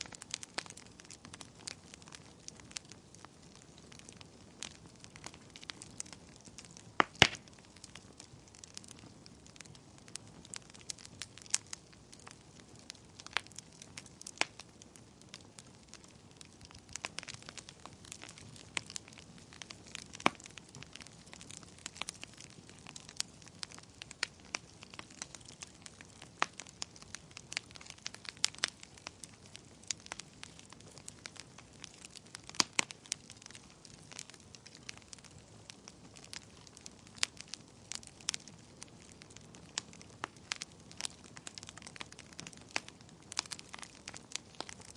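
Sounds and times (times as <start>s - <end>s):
sharp pops of fire: 0.0s - 44.9s
soft hiss of flames: 0.0s - 44.9s
wood fire crackling: 0.0s - 44.9s.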